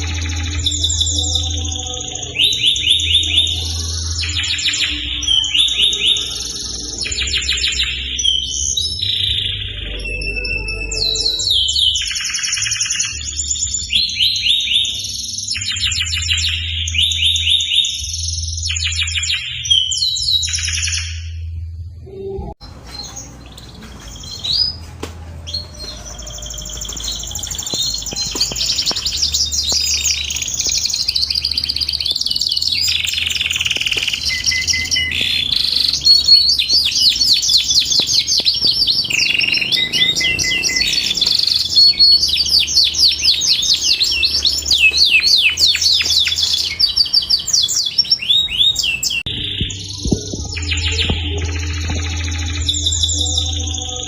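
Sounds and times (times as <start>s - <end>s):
canary singing trills: 0.0s - 21.5s, 22.2s - 54.0s.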